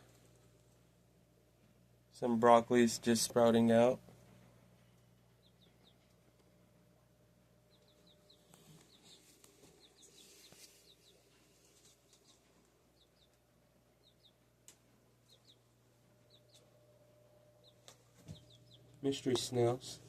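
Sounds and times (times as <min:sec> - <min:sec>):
steady low hum: 0:00.0 - 0:20.0
chicks peeping: 0:05.0 - 0:06.4, 0:07.6 - 0:16.8, 0:17.6 - 0:20.0.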